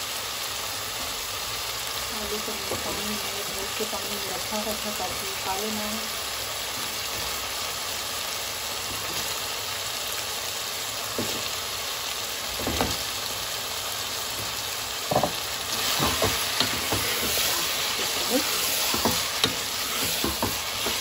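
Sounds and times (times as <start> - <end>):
meat sizzling in a pot: 0.0 - 21.0
potato chunks knocking into pot: 14.3 - 17.4, 18.9 - 21.0.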